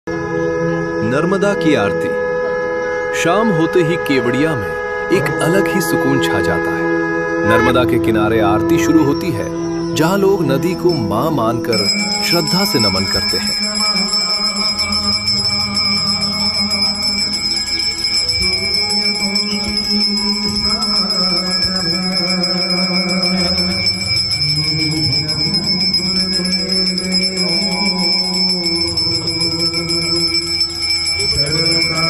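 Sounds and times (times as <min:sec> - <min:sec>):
bells ringing: 0:00.1 - 0:32.0
devotional singing: 0:09.2 - 0:32.0.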